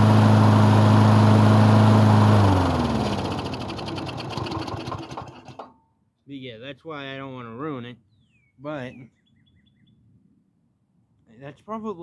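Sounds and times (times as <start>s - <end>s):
mower engine running and winding down: 0.0s - 5.6s.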